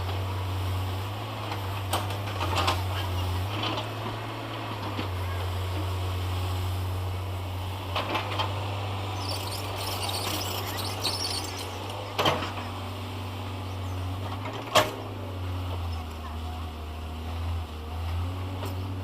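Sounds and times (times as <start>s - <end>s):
diesel engine running: 0.0s - 19.0s
birds chirping: 9.0s - 14.2s.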